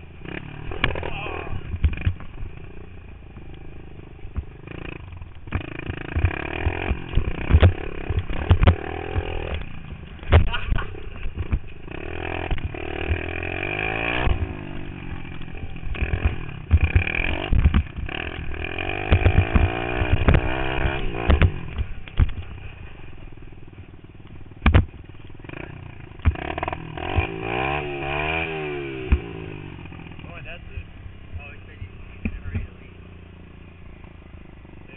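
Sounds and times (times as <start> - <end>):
motorbike engine revving: 0.0 - 34.9
sharp knocks and clatter: 4.3 - 11.8, 15.2 - 22.7, 24.6 - 27.6.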